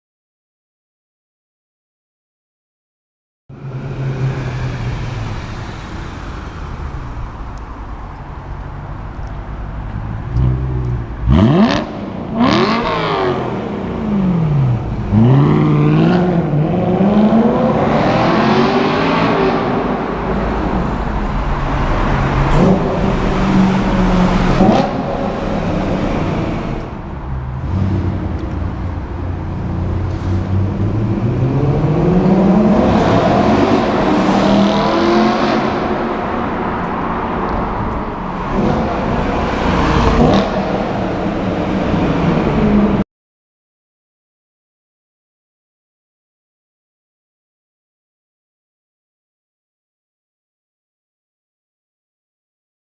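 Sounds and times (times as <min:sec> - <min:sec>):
car engine revving: 0:10.1 - 0:28.8, 0:29.6 - 0:43.0.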